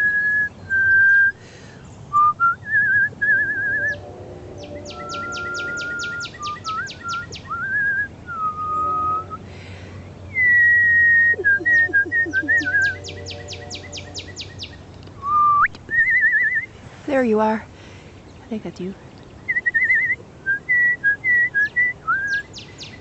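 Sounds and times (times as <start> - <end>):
person whistling bird calls: 0.0 - 1.4, 2.1 - 9.4, 10.3 - 14.6, 15.2 - 16.7, 19.5 - 23.0
bird calling sharp notes: 3.3 - 7.7, 11.2 - 14.8.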